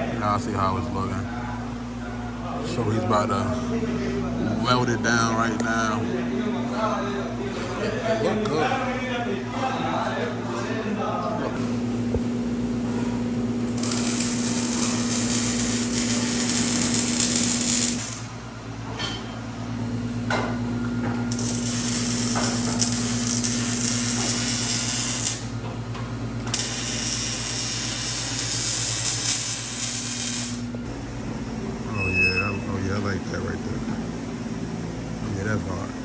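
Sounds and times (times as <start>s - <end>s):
electrical hum: 11.3s - 18.9s, 19.5s - 36.0s
arc welding hiss: 13.6s - 18.3s, 21.2s - 25.6s, 26.4s - 36.0s.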